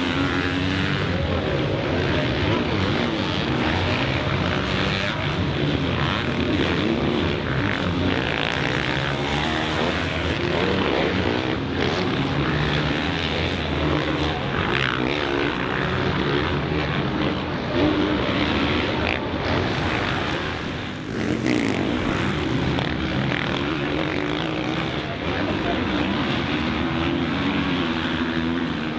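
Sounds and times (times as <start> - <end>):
motocross bike engine revving: 2.9 - 11.5, 18.4 - 24.7.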